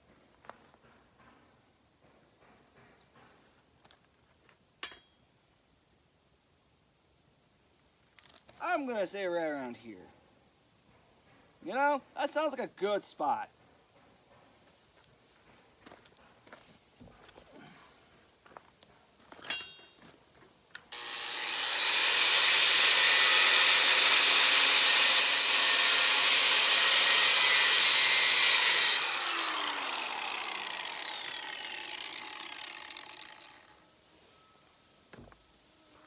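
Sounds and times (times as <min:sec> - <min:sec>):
grinder grinding steel: 0:21.0 - 0:33.8.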